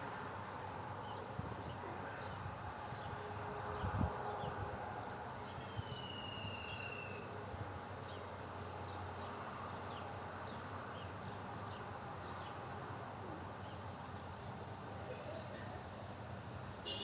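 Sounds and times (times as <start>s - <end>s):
bird whistle: 5.6s - 7.2s.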